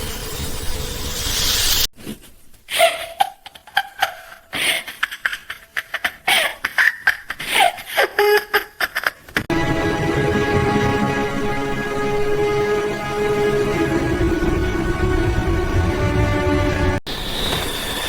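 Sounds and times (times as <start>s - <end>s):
high-pitched laugh-like vocal sounds: 2.7s - 9.4s.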